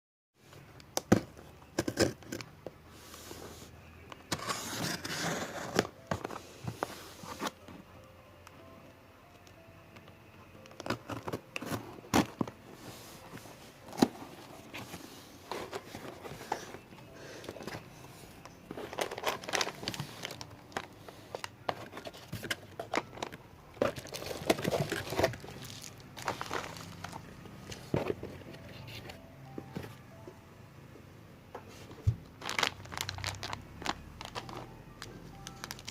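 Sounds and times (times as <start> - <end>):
rustling and scraping: 11.2 - 29.2
plastic wrapping crinkling and tearing: 18.7 - 27.2, 32.3 - 35.9.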